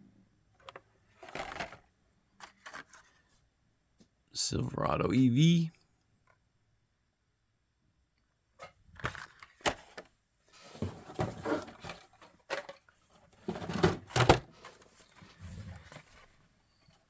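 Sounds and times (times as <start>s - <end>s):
plastic packs clicking and knocking: 0.6s - 1.8s, 8.6s - 10.1s, 10.7s - 15.2s.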